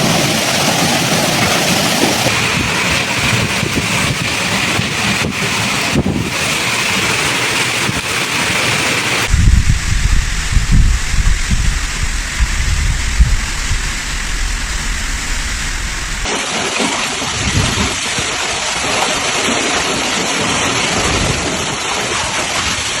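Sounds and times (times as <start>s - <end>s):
wind gusts buffeting microphone: 0.0s - 7.1s, 9.2s - 16.3s, 17.3s - 19.0s
heavy rain: 0.0s - 23.0s.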